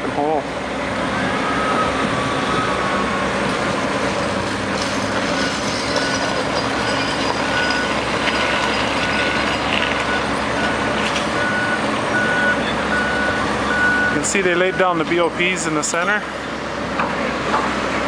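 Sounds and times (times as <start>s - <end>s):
heavy truck engine running: 0.0s - 18.0s
backup alarm beeping: 10.1s - 15.0s.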